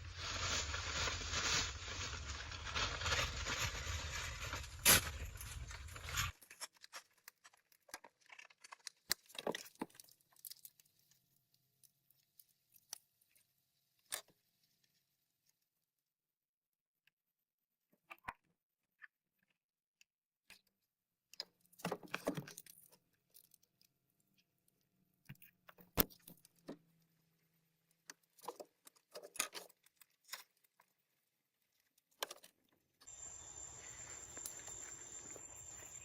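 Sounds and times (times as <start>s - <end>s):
small objects clicking and rattling: 4.3s - 13.4s, 27.9s - 33.2s
high insect drone: 33.1s - 36.0s
outdoor background hiss: 33.1s - 36.0s.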